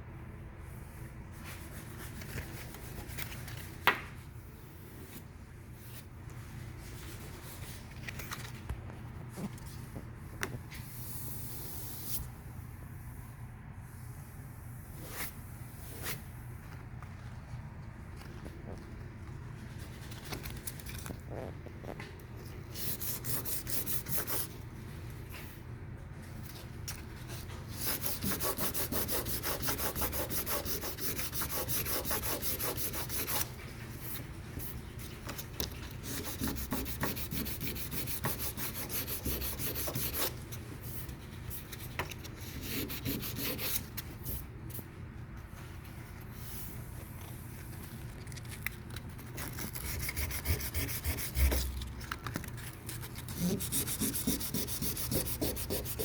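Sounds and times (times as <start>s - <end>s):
sandpaper rubbing on primer: 27.8s - 33.4s, 36.0s - 40.3s, 42.6s - 43.8s, 49.6s - 51.8s, 53.3s - 56.0s.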